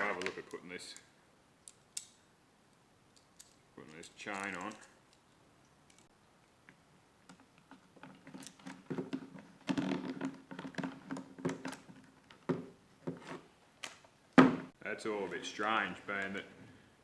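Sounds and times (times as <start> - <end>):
saw chain clicking and rattling: 3.2 - 5.0.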